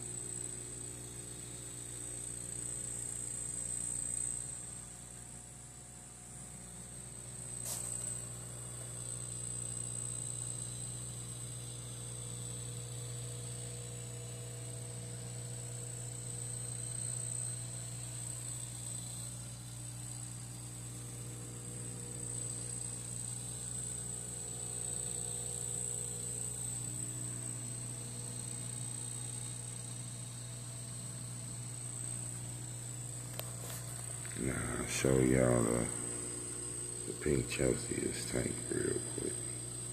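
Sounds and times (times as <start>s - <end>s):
water pump humming: 6.4s - 39.9s
high-pitched whine: 24.8s - 39.9s.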